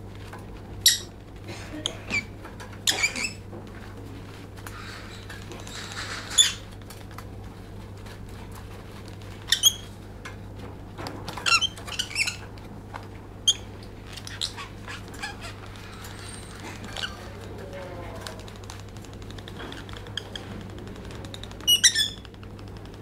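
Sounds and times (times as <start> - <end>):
bird squeaky chirps: 21.7 - 22.2.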